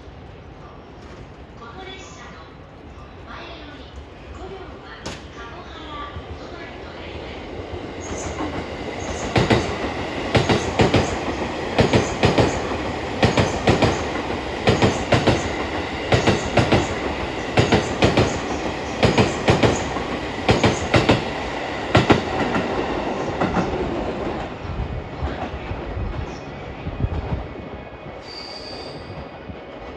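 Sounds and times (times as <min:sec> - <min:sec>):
train running noise: 0:00.0 - 0:29.9
train wheels clattering over rail joints: 0:08.2 - 0:23.8.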